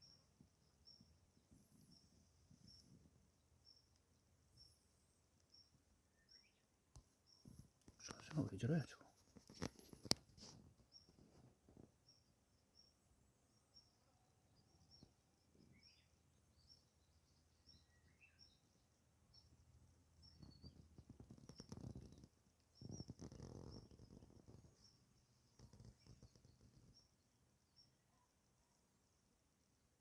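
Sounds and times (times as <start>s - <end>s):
small birds chirping: 0.0s - 29.2s
soft rustle: 7.3s - 12.1s, 20.4s - 27.1s.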